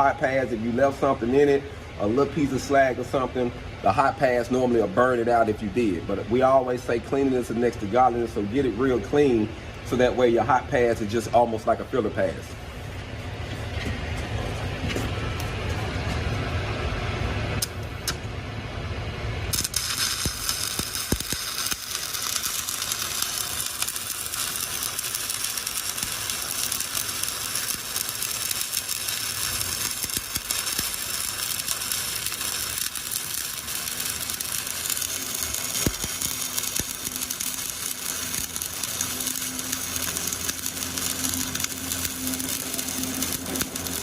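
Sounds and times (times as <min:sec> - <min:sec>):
welding arc crackling: 0:19.4 - 0:44.0.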